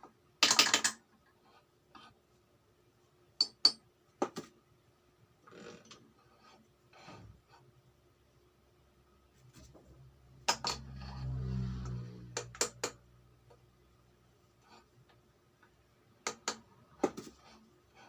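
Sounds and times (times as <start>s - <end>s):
metal scrapes: 10.5s - 12.6s.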